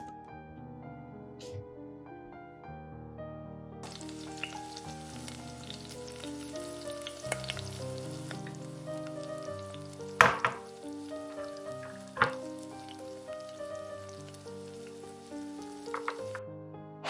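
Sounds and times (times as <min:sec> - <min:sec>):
soft background music: 0:00.0 - 0:17.0
food sizzling in a pan: 0:03.8 - 0:16.4.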